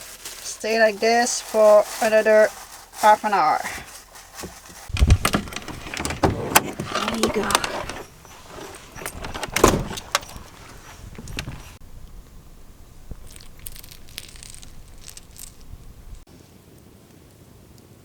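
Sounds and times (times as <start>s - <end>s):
faint scattered clicks: 5.2s - 16.2s.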